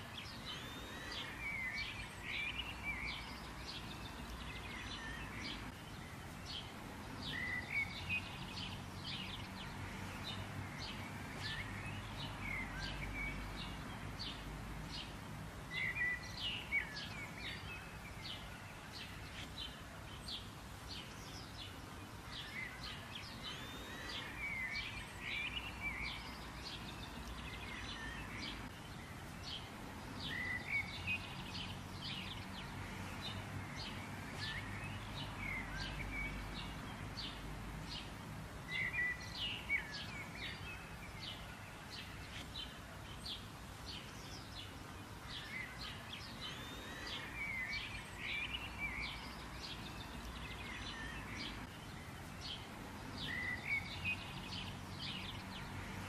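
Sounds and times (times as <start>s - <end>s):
outdoor background hiss: 0.0s - 56.0s
small birds chirping: 0.0s - 56.0s.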